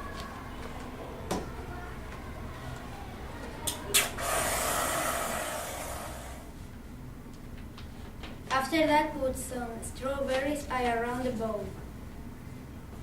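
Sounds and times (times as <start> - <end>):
whipped cream spray hissing: 4.0 - 6.5.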